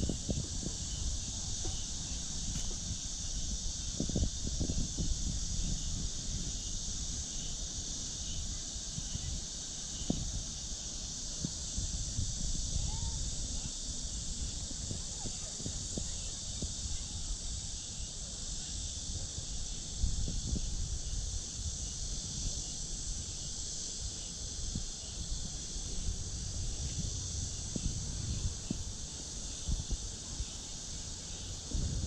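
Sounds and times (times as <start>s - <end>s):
insects chorus: 0.0s - 32.0s
low thuds and rumble: 25.3s - 30.6s, 31.4s - 32.0s.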